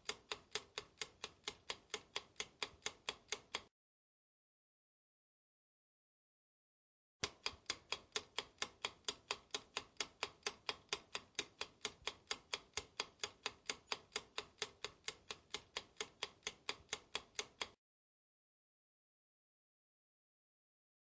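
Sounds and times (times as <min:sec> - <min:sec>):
clock-like ticking: 0:00.0 - 0:03.7, 0:07.2 - 0:17.8.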